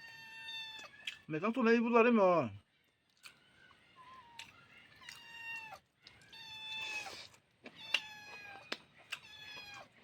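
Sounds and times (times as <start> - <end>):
cat meowing: 0.0 - 1.0, 5.0 - 7.1, 7.7 - 10.0.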